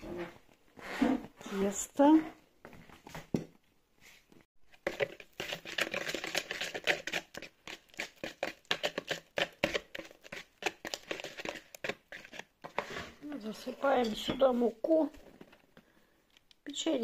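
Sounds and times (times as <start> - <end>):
spoon scraping in mixing bowl: 4.7 - 14.7.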